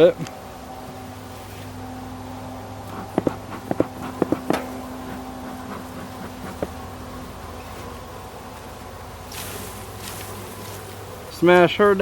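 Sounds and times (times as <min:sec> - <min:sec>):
bees humming: 0:00.5 - 0:11.4
sharp wooden knocks: 0:03.1 - 0:04.7.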